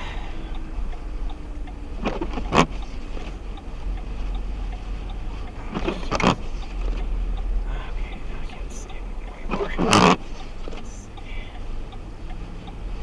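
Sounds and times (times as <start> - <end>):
radio receiver hum and hiss: 0.0 - 13.0.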